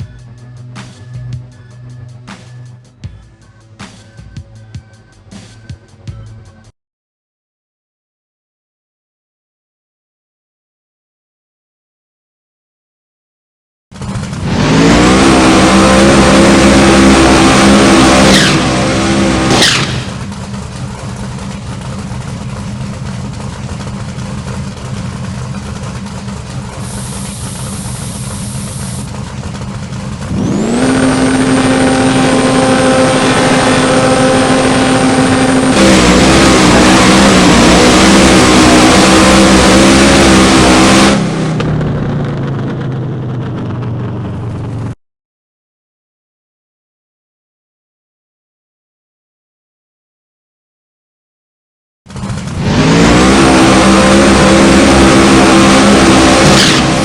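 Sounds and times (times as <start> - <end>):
drag car engine at high revs: 14.0 - 42.8, 52.1 - 57.0
supercharger whine: 14.0 - 45.0, 52.1 - 57.0.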